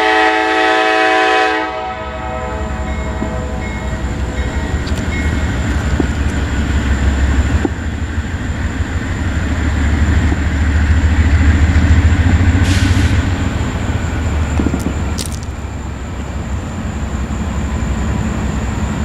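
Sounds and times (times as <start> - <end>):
freight train rumbling: 0.0 - 19.0
brief hiss: 12.6 - 13.4.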